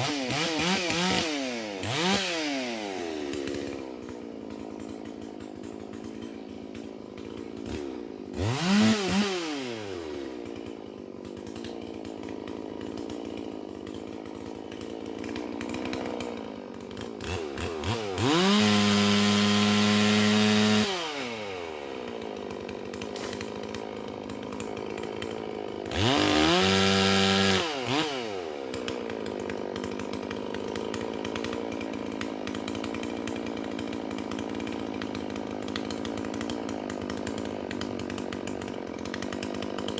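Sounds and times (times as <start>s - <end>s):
chainsaw full-throttle revs: 0.0s - 39.9s
chainsaw idling: 0.0s - 39.9s
chainsaw throttle blip: 0.0s - 39.9s.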